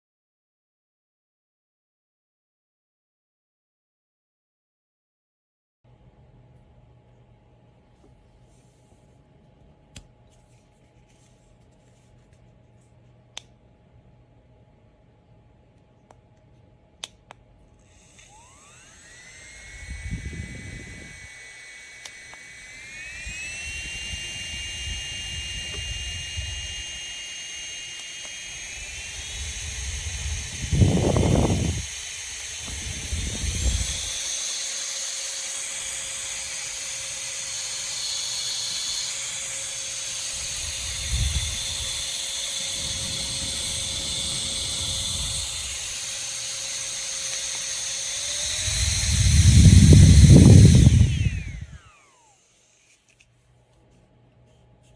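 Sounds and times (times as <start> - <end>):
handheld fan motor whine: 16.0 - 54.9.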